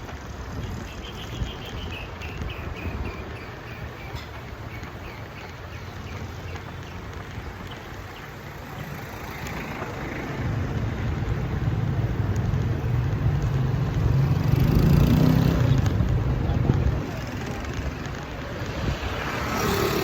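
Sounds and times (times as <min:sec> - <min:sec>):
road and wind noise: 0:00.0 - 0:20.0
vehicle engine passing: 0:08.6 - 0:20.0.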